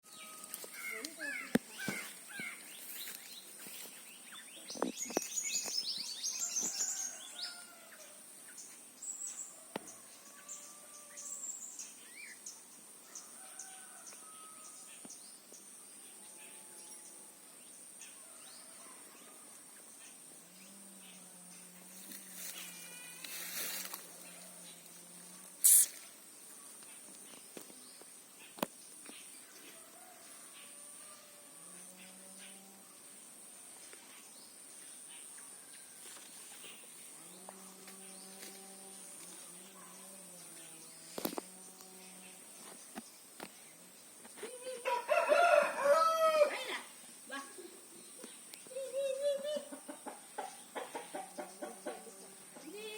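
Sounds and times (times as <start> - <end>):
small birds chirping: 0.1 - 7.6.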